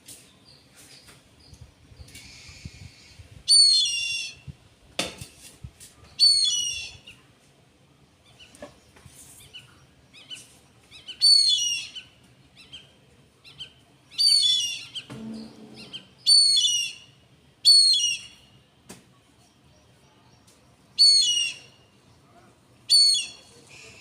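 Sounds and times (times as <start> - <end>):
loud high bird calls: 13.5 - 18.4, 21.0 - 21.9.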